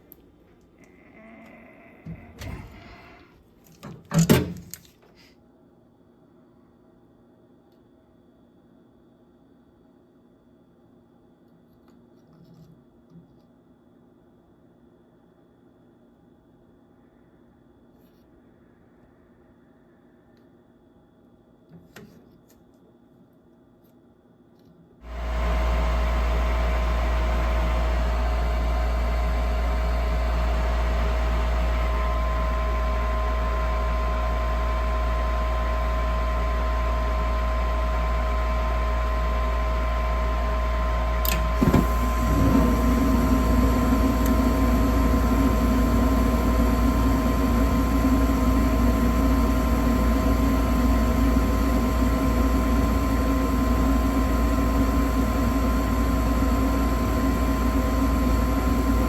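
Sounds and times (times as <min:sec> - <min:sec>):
inducer motor humming: 0:25.1 - 0:59.0
furnace ignition click: 0:41.2 - 0:43.1, 0:44.0 - 0:44.6.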